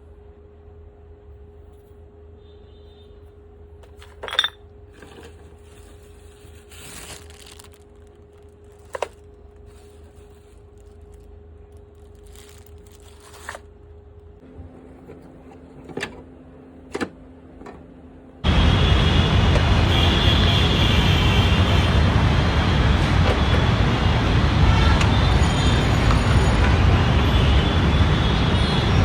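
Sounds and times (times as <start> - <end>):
small hard parts clinking: 3.9 - 5.5
scraping rustles: 4.9 - 13.7.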